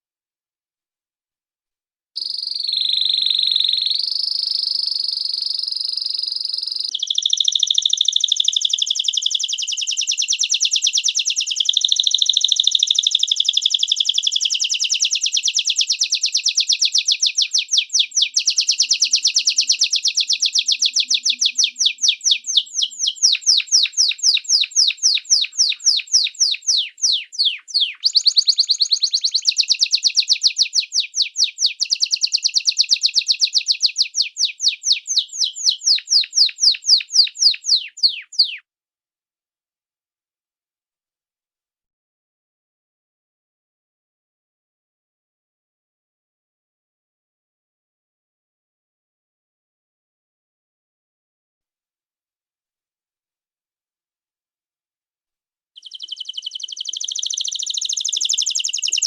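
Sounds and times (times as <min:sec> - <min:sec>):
songbird singing: 0:02.2 - 0:38.6, 0:55.8 - 0:59.0.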